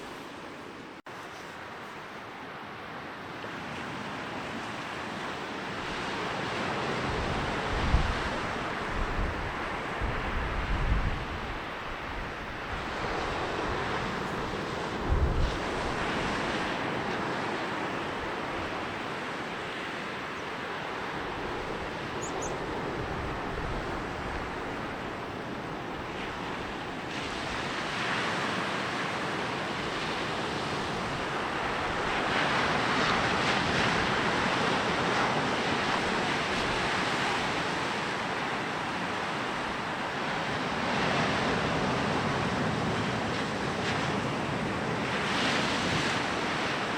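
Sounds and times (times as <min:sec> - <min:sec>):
sea waves breaking on beach: 0:00.0 - 0:46.9.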